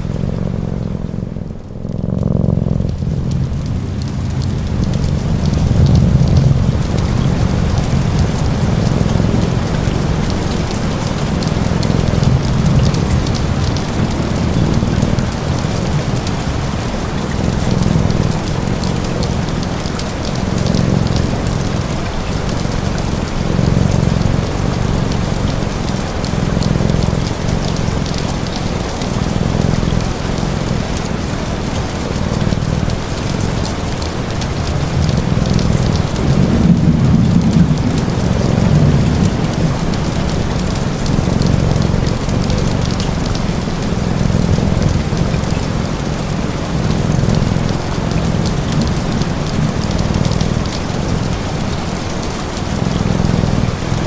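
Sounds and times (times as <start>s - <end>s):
low rumble: 0.0s - 30.7s
steady rain: 0.0s - 54.0s.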